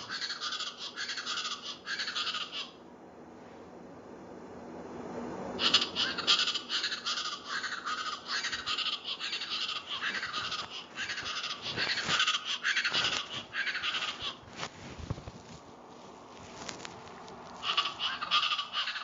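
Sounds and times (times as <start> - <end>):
bird rapid repeated calls: 0.0 - 2.8, 5.6 - 14.4, 17.6 - 19.0.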